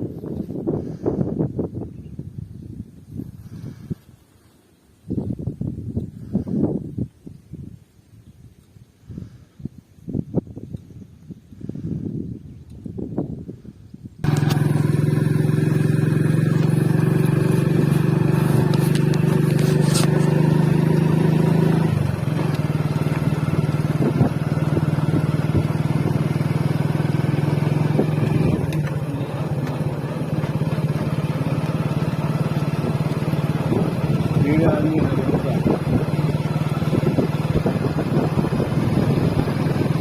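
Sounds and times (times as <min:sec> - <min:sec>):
vehicle engine running: 0:14.2 - 0:40.0.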